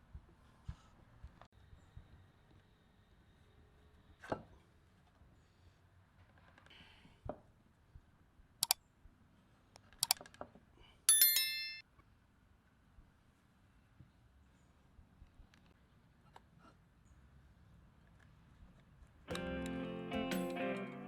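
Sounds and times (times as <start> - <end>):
glass clinking: 11.1 - 11.8.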